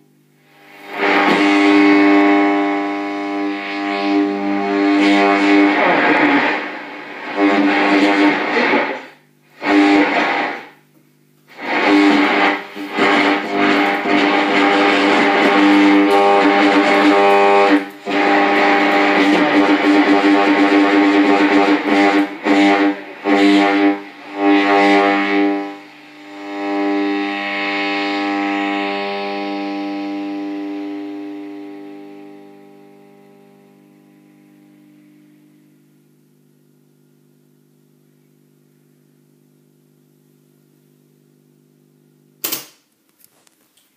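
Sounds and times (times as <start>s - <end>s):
bursts of radio noise: 5.0s - 10.7s
sustained drone chord: 11.6s - 35.5s.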